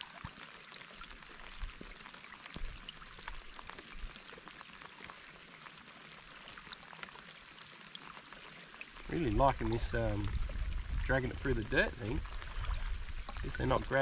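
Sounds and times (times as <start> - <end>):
rain falling on water: 0.0 - 14.0
dull low thumps: 9.4 - 13.6.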